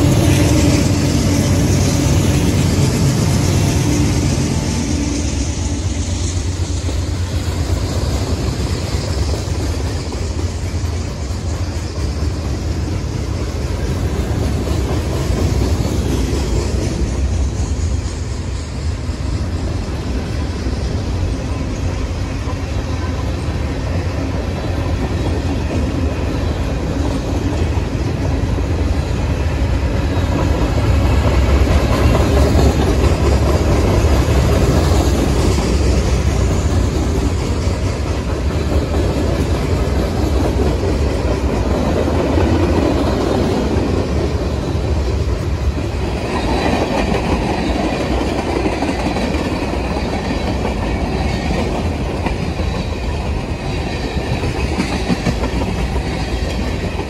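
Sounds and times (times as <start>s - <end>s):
freight train wheels rolling: 0.0s - 57.0s.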